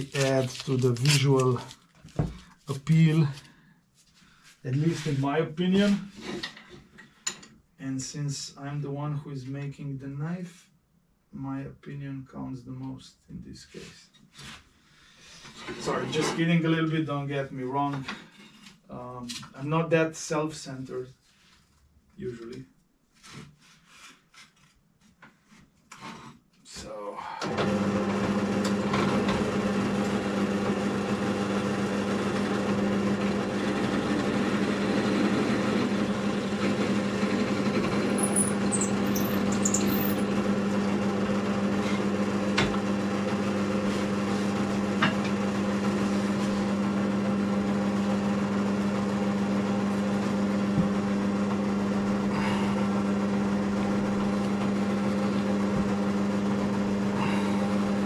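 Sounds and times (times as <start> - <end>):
electric motor humming: 27.5 - 58.0
high metal squeaks: 38.1 - 40.2.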